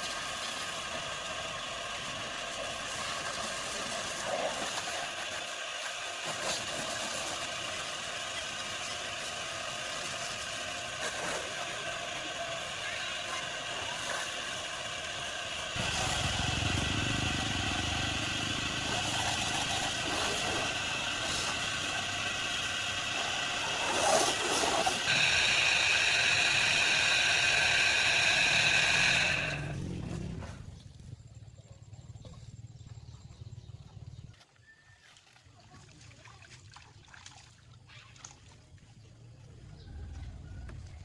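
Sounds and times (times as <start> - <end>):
motor whining: 10.9 - 30.9.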